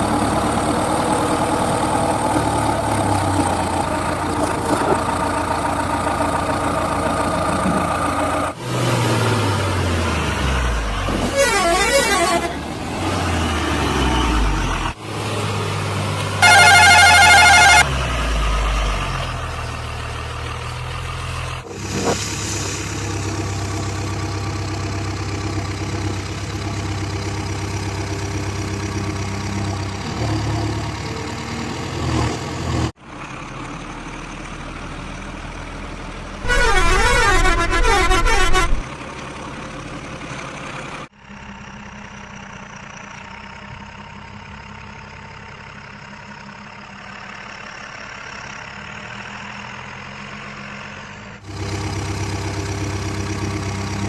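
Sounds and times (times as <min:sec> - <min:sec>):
heavy diesel engines running: 0:00.0 - 0:54.0
warbling vehicle horn: 0:11.3 - 0:12.6, 0:16.4 - 0:17.9, 0:36.4 - 0:38.9.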